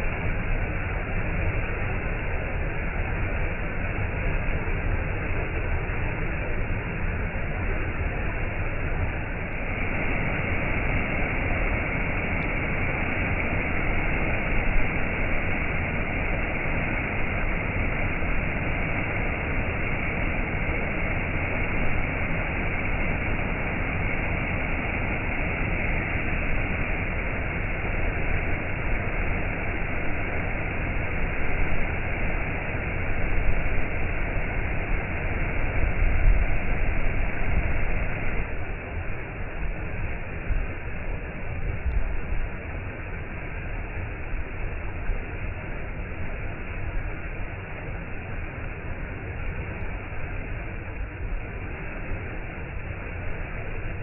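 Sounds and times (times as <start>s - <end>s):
waterfall rushing: 8.9s - 35.9s.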